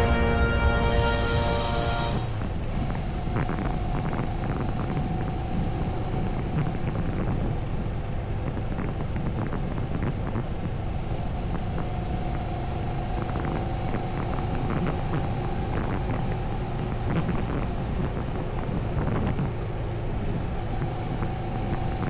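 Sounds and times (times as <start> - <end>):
steady whine: 0.0 - 22.0
wind on microphone: 1.1 - 22.0.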